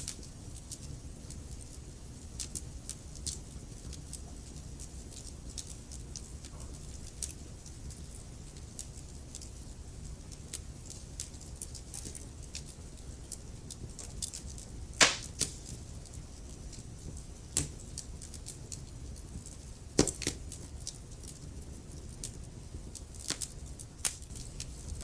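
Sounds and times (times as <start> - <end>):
low rumble of flames: 0.0 - 25.0
logs crackling and popping: 10.4 - 25.0.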